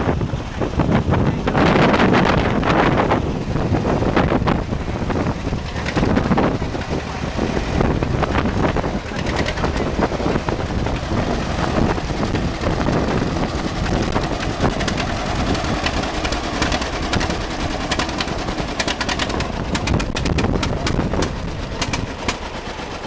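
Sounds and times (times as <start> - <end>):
tractor engine running: 0.0 - 23.0
rapid sharp clicks: 5.3 - 23.0.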